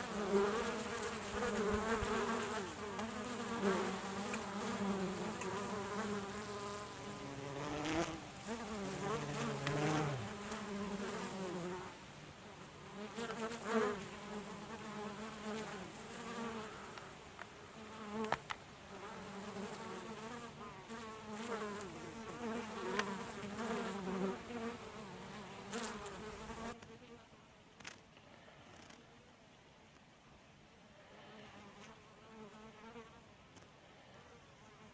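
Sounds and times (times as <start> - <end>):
honeybees buzzing: 0.0 - 26.8.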